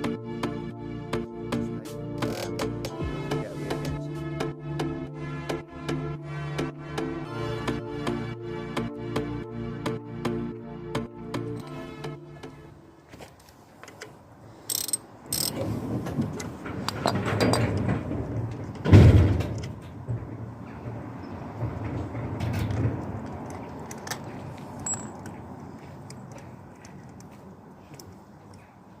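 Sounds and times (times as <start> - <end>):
tool clicks and scrapes: 2.2 - 2.9, 13.8 - 15.9
loud thump: 18.8 - 20.3
sharp metallic clinks: 24.8 - 25.4.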